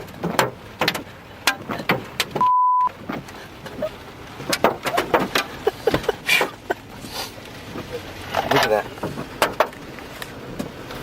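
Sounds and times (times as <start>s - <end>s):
hailstones striking a vehicle: 0.0s - 11.0s
short steady beep: 2.4s - 2.9s.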